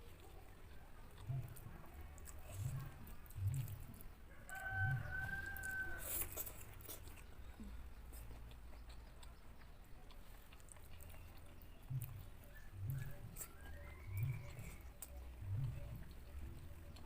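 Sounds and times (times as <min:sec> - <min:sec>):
soft chewing thuds: 0:00.0 - 0:17.0
rooster crowing: 0:04.3 - 0:06.2.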